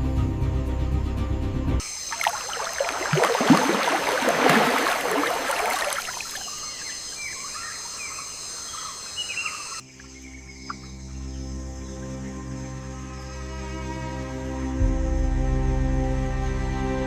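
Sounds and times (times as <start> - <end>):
splashing water: 1.8 - 7.0
insect drone: 1.8 - 16.4
bird chirps: 5.8 - 11.9
ambient music with low tones: 9.8 - 17.0.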